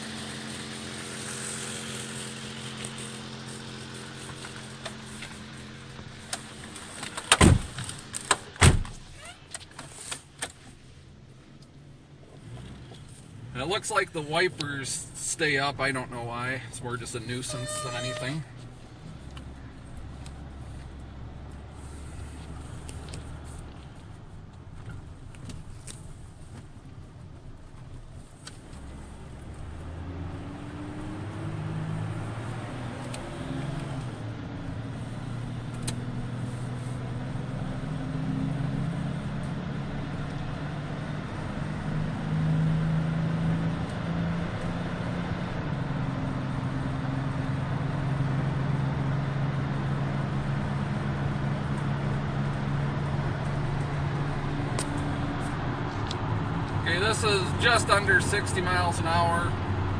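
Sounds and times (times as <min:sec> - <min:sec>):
car engine drone shifting gears: 0:00.0 - 0:59.9
road and tyre noise: 0:00.0 - 0:59.9.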